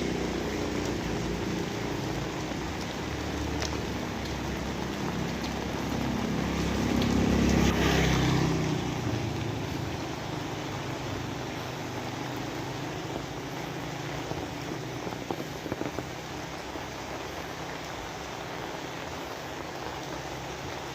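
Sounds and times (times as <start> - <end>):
passing vehicle engine hum: 0.0 - 20.9
rain falling: 0.0 - 20.9.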